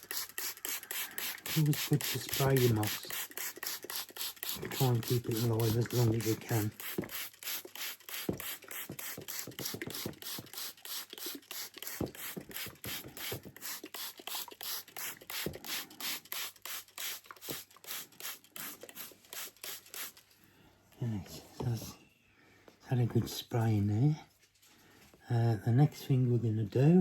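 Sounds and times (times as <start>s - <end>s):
spray bottle squirting: 0.0s - 20.3s.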